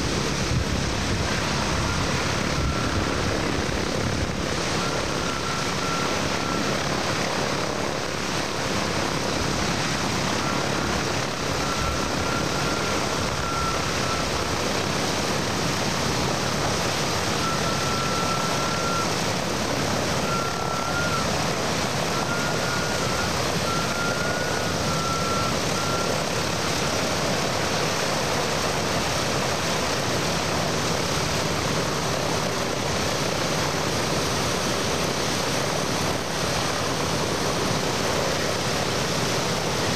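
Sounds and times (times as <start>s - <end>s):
propeller plane engines droning: 0.0s - 39.9s
faint wavering whistle: 20.2s - 21.3s.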